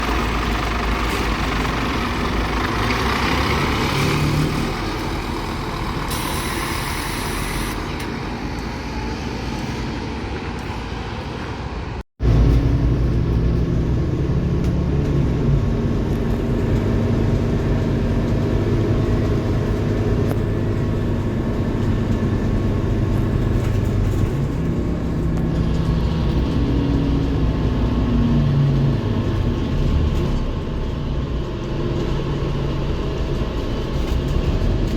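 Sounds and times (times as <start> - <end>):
bus diesel engine running: 0.0 - 34.9
short air hiss: 6.1 - 7.9.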